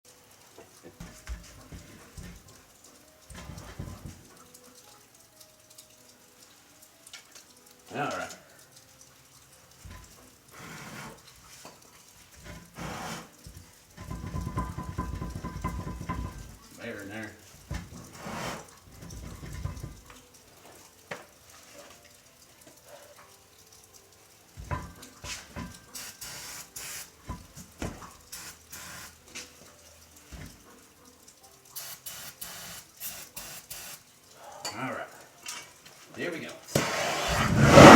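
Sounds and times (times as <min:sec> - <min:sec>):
aerosol can spraying: 0:26.0 - 0:27.2, 0:28.4 - 0:29.2, 0:31.8 - 0:34.0, 0:36.7 - 0:37.9.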